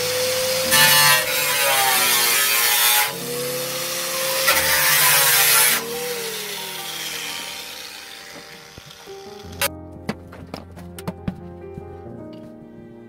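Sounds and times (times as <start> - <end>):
power tool cutting: 0.0 - 9.7.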